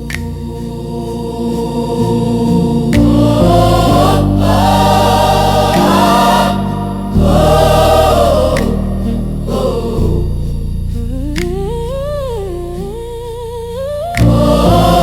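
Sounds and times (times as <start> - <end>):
gospel choir singing: 0.0 - 11.4, 14.1 - 15.0
bass accompaniment: 0.0 - 15.0.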